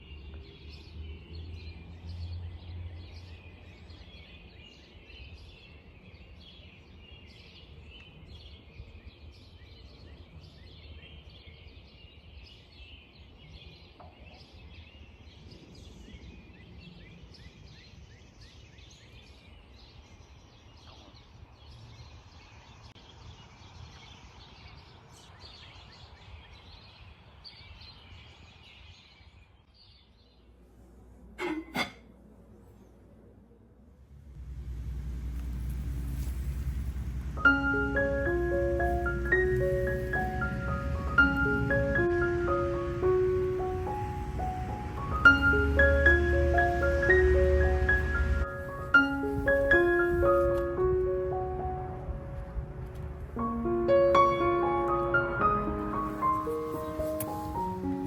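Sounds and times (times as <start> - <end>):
small birds chirping: 0.0 - 30.6, 34.3 - 50.8, 54.0 - 58.0
low rumble: 33.2 - 56.5.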